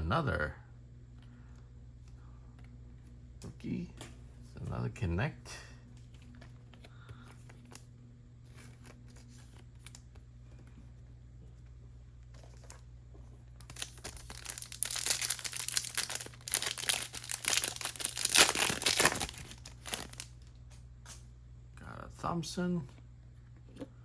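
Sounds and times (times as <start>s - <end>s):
foil pack tearing and crinkling: 13.6s - 20.4s.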